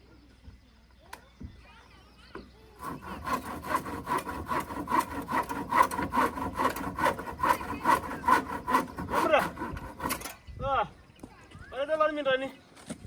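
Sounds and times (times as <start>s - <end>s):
hand saw cutting wood: 2.8s - 10.4s.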